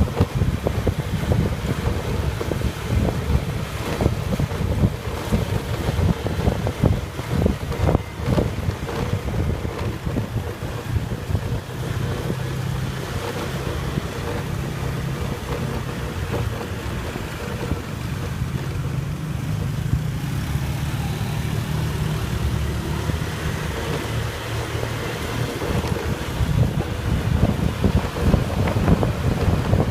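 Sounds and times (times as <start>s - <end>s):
motorbike engine running: 0.0s - 29.9s
wind buffeting microphone: 0.0s - 29.9s.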